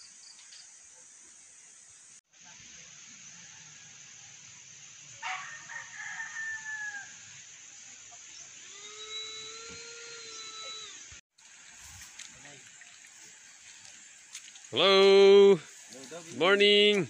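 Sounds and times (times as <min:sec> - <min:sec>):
rooster crowing: 0:05.2 - 0:07.3.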